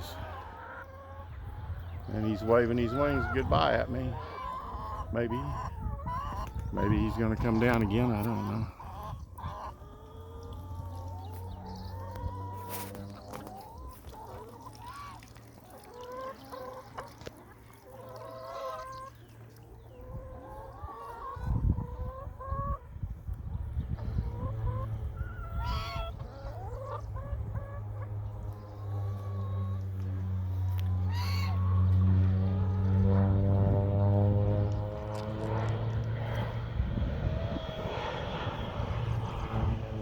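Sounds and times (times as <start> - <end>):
hens clucking: 0.0 - 40.0
steady low hum: 27.0 - 40.0
low rumble: 32.0 - 40.0.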